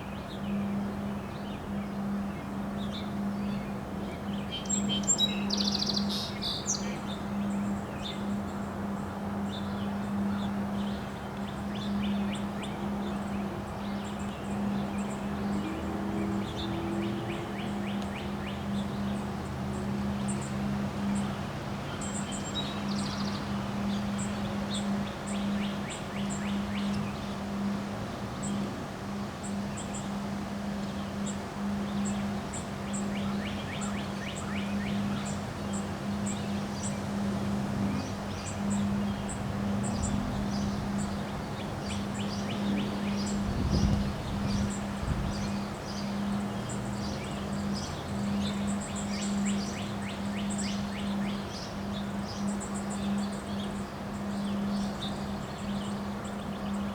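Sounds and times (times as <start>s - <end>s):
birds chirping and trilling: 0.0s - 56.9s
steady low hum: 0.0s - 56.9s
wind noise: 35.2s - 45.9s.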